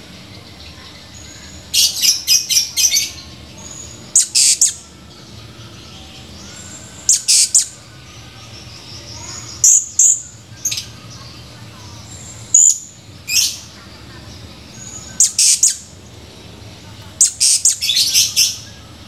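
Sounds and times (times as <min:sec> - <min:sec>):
parrot shrill high chirps: 0:04.1 - 0:04.8, 0:07.1 - 0:07.8, 0:14.8 - 0:15.9, 0:17.2 - 0:18.6.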